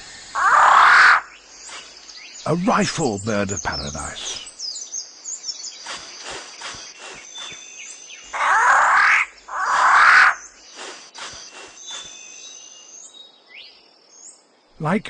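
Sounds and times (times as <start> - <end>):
insect tones: 0.0 - 15.0
high bird chirping: 1.2 - 14.3
bird harsh rasping: 5.8 - 12.4.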